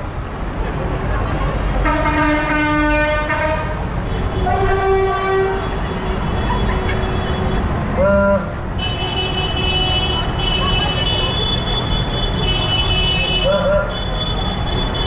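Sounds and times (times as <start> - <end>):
vehicle horns: 1.8 - 15.0.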